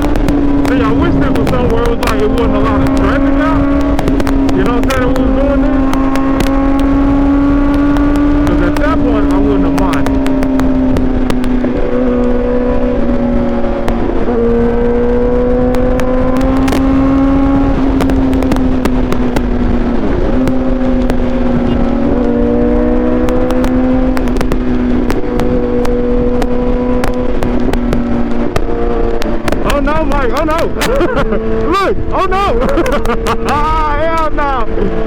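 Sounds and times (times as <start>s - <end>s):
motorcycle engine at high revs: 0.0s - 35.0s
wind rumble on microphone: 0.0s - 35.0s.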